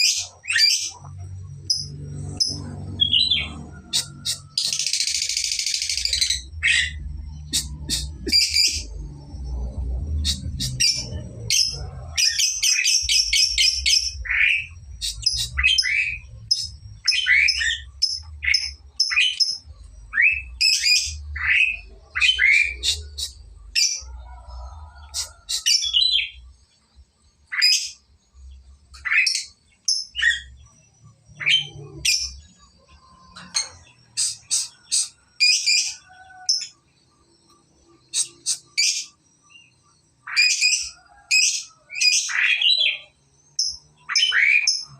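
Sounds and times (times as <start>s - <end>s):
lovebird chirping and squawking: 0.0s - 9.0s, 10.0s - 24.1s, 25.0s - 26.4s, 27.5s - 28.0s, 29.0s - 30.6s, 31.4s - 32.5s, 33.4s - 36.8s, 38.1s - 39.1s, 40.2s - 44.9s
bird chattering trill: 1.7s - 8.9s, 10.2s - 24.1s, 33.6s - 36.7s, 38.1s - 39.2s.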